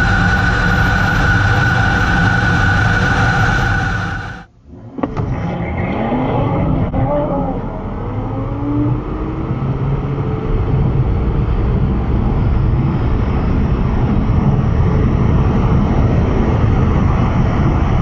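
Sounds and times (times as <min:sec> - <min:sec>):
faint rising tone: 0:00.0 - 0:06.2
car engine rumbling at speed: 0:00.0 - 0:18.0.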